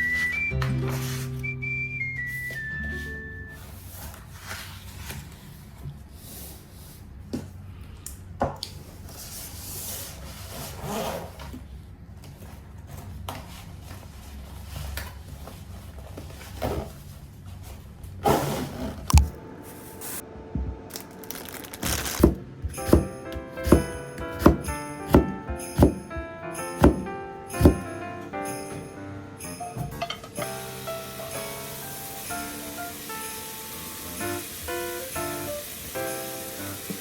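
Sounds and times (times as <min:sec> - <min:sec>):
faint room hum: 0:03.1 - 0:33.0
paper rustling and scratching: 0:03.7 - 0:06.6, 0:21.3 - 0:22.4
sharp knocks: 0:22.2 - 0:26.2, 0:26.8 - 0:28.0.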